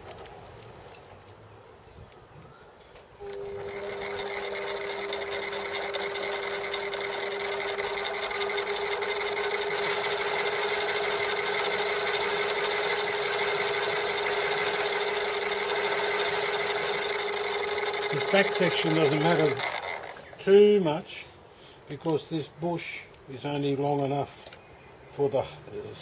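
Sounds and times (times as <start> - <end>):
high whine: 3.2 - 20.2
lathe tool scraping metal: 3.2 - 20.3
lathe motor hum: 3.2 - 20.4.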